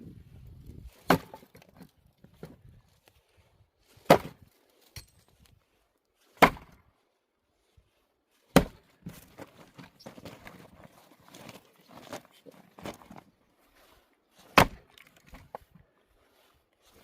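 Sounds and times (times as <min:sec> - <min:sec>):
axe splitting firewood: 0:00.9 - 0:02.7, 0:03.9 - 0:05.5, 0:06.3 - 0:06.8, 0:08.5 - 0:13.2, 0:14.4 - 0:15.6.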